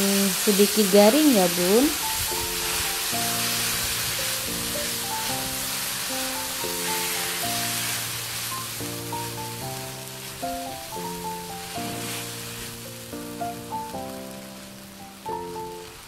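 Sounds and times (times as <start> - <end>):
paste sizzling in oil: 0.0 - 16.0
spatula stirring in wok: 0.3 - 9.4, 11.4 - 12.9
background music with held notes: 1.8 - 16.0.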